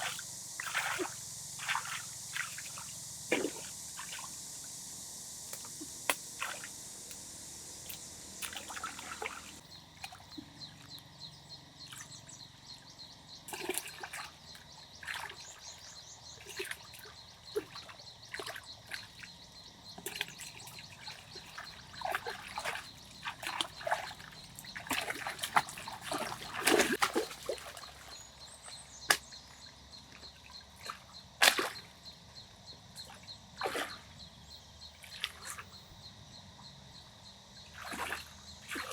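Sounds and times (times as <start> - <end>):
water sloshing and splashing: 0.0 - 4.4, 5.5 - 10.9, 13.4 - 29.3, 33.1 - 34.1, 37.7 - 38.9
steady high hiss: 0.0 - 9.6.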